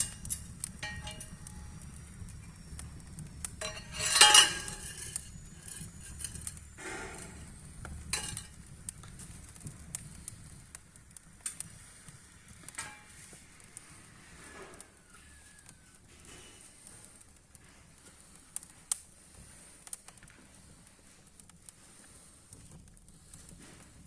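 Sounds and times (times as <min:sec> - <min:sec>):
scraping rustle: 0:00.0 - 0:01.4, 0:03.6 - 0:08.6
firewood knocking and clattering: 0:00.0 - 0:01.9, 0:03.4 - 0:10.6, 0:12.6 - 0:13.4.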